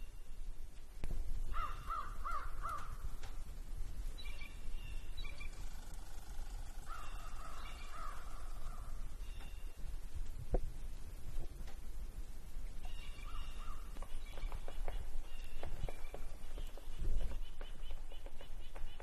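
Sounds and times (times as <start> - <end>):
low steady rumble: 0.0 - 14.4
bird harsh calls: 1.5 - 3.1, 4.2 - 9.8, 12.8 - 19.0.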